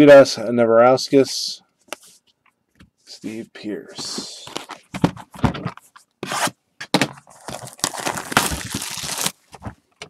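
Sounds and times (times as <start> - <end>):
cards rubbing and crinkling: 7.2 - 9.8
trading cards rustling: 7.2 - 9.9.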